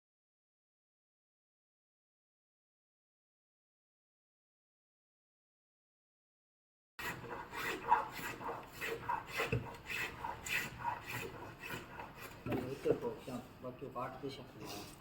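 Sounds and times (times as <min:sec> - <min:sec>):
wood being scraped by hand: 0:07.0 - 0:13.4.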